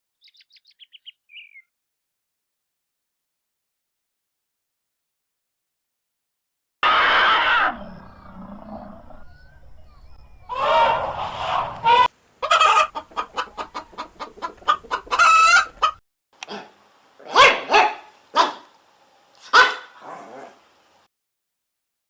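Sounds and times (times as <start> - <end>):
chickens clucking: 8.0 - 16.7, 17.3 - 18.7.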